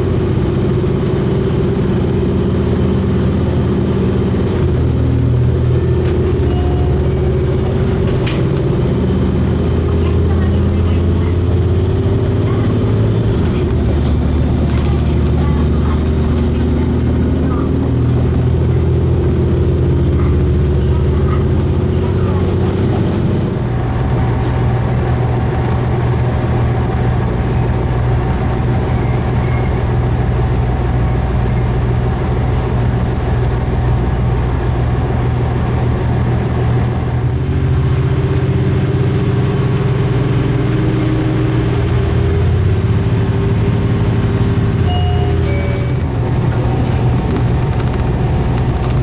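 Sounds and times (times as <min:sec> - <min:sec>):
diesel railcar engine running: 0:00.0 - 0:49.0.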